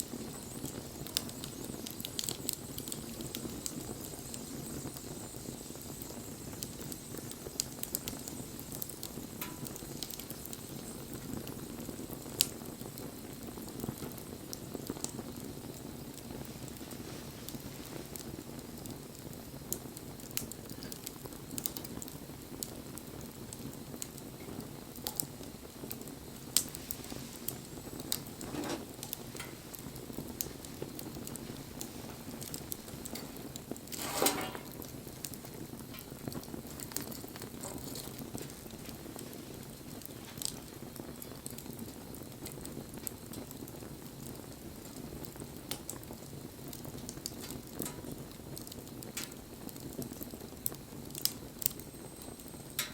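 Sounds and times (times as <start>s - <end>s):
campfire crackling: 0.0s - 52.9s.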